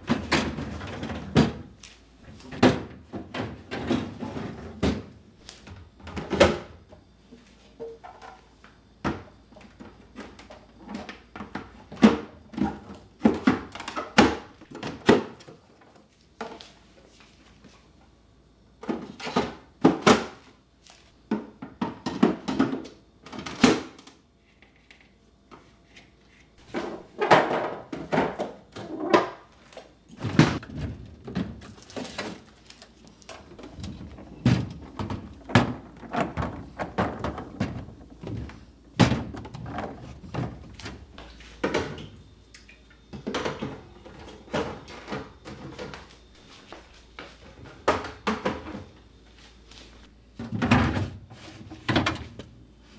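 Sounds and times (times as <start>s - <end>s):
kitchen items clattering: 26.6s - 49.0s.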